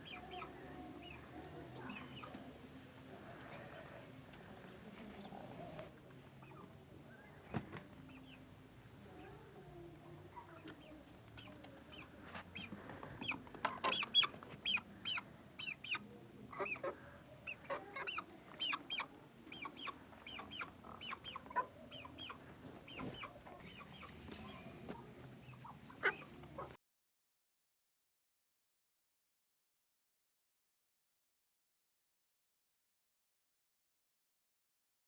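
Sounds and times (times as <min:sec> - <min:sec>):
chickens clucking: 0:00.0 - 0:09.4, 0:10.3 - 0:26.8.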